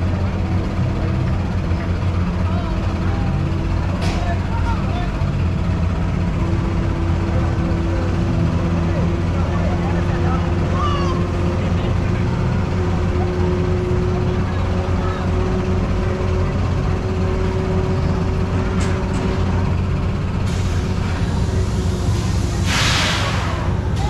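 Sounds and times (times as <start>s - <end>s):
ride machinery rumbling: 0.0s - 24.0s
air hiss: 20.5s - 23.7s.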